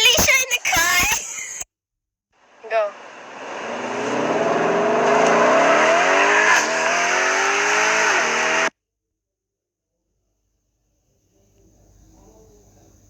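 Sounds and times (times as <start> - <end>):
car engine accelerating hard: 2.5 - 8.7.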